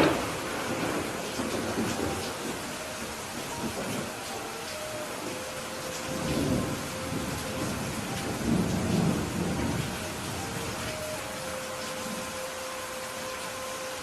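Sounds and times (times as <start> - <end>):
low thunder rumbling: 0.0 - 12.3
steady rain falling: 0.0 - 14.0.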